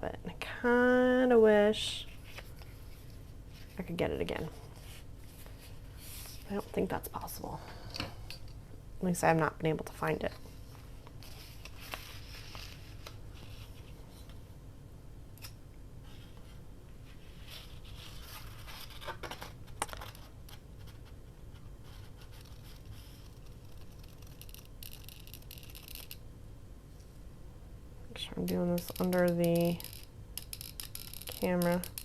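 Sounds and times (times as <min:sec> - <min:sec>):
tape and paper scraping rustling: 0:10.4 - 0:14.4, 0:16.1 - 0:21.2.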